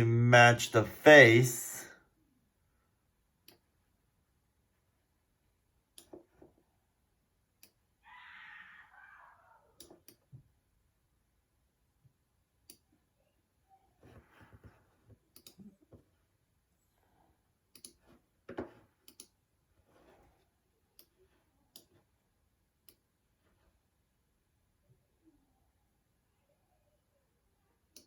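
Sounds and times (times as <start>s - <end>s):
soft handling noise: 13.9s - 16.4s, 17.9s - 22.3s
computer mouse clicks: 15.3s - 15.7s, 17.7s - 19.4s, 21.0s - 22.0s.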